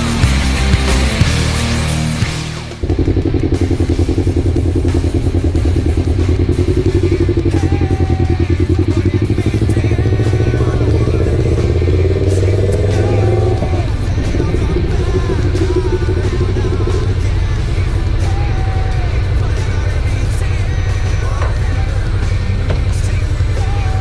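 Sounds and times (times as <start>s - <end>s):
motorcycle engine idling: 2.7s - 24.0s.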